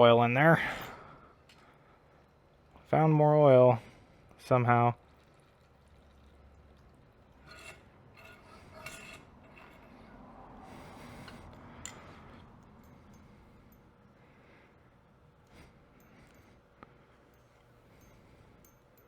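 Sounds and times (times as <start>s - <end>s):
hands rubbing and scraping parts: 7.5s - 10.2s.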